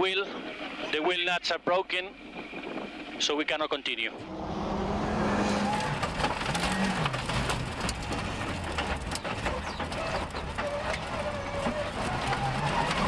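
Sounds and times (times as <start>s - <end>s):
rally car engine running: 4.2s - 13.0s
gravel clicking against car: 5.4s - 13.0s.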